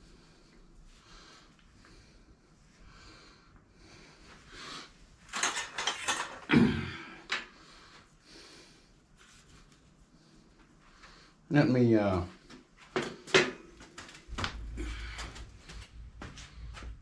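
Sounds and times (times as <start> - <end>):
soft breathing: 0.0 - 5.2, 6.9 - 11.5, 14.4 - 17.0
metal clicks and clatter: 5.3 - 6.5.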